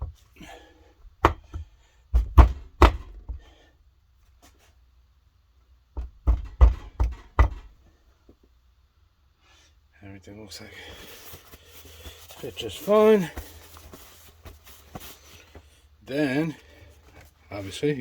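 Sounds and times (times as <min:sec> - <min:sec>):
heavy knocks on engine cylinder: 0:01.2 - 0:03.5, 0:06.0 - 0:07.8.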